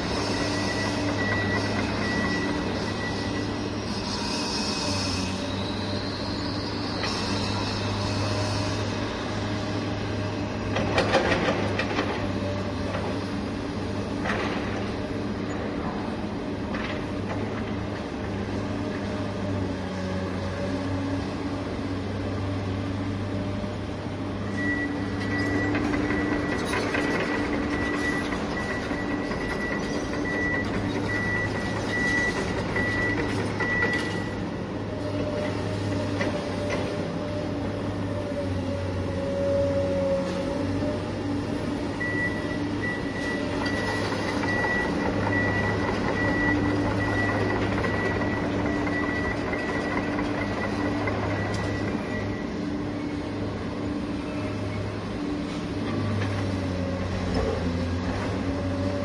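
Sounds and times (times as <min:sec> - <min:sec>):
reversing alarm beeping: 0:00.0 - 0:04.7, 0:24.5 - 0:34.4, 0:41.9 - 0:53.3
heavy vehicle engine running: 0:00.0 - 0:59.0.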